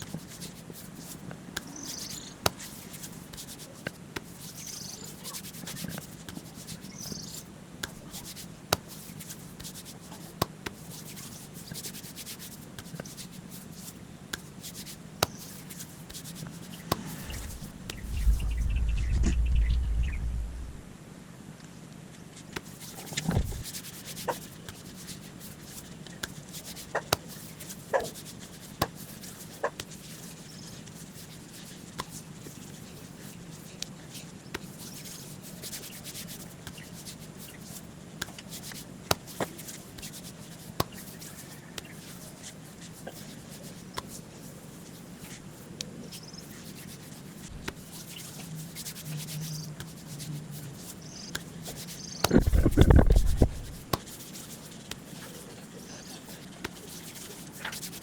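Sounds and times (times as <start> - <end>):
rubbing and wiping on surface: 0.0 - 19.6, 22.6 - 58.0
faint low hum: 16.4 - 21.4, 52.0 - 53.8.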